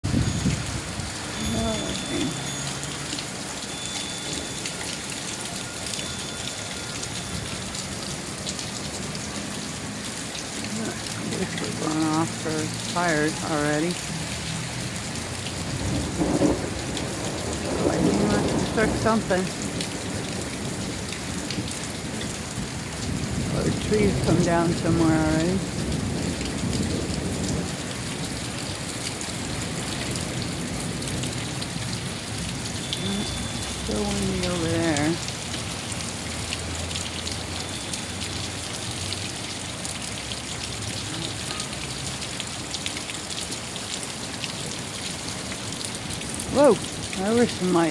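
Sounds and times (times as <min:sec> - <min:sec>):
steady rain: 0:00.0 - 0:47.9
low thunder rumble: 0:15.6 - 0:24.9.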